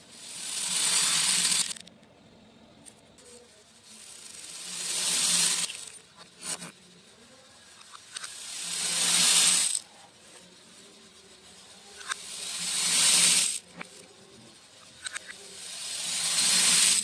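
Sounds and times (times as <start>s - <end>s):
beads pouring in a stream: 0.2s - 1.8s, 3.8s - 6.1s, 8.3s - 9.9s, 12.0s - 13.7s, 15.5s - 17.0s
single beads clicking: 0.2s - 2.2s, 4.3s - 6.7s, 7.8s - 10.0s, 11.9s - 14.1s, 14.9s - 17.0s.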